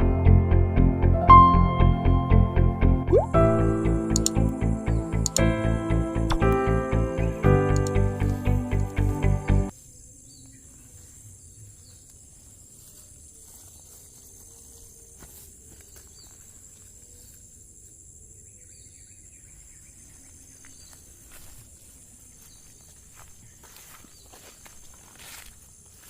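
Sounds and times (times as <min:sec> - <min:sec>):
high-pitched insect chorus: 0:09.7 - 0:26.0.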